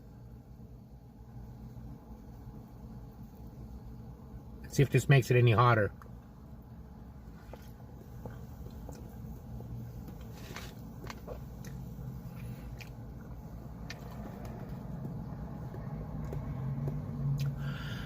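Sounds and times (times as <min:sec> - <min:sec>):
steady low hum: 0:00.0 - 0:18.0
person chewing food: 0:07.3 - 0:09.2, 0:10.1 - 0:17.6.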